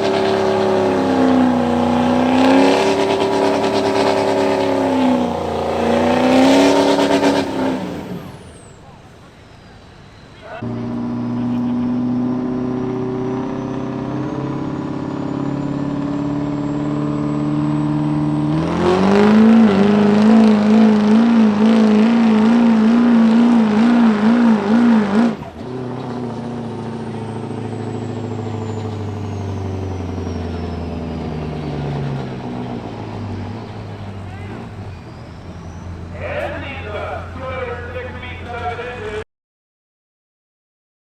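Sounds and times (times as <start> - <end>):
diesel truck engine revving: 0.0 - 39.3
turbo whistle: 27.1 - 31.8.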